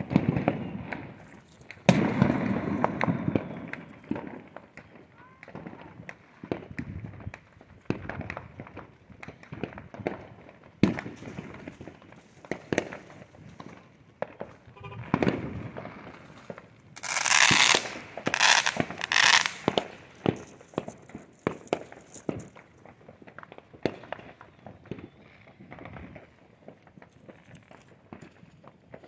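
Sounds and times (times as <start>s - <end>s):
crackling firework bursts: 0.0s - 29.0s
firecrackers popping: 0.0s - 29.0s
loud firework bang: 14.4s - 20.4s.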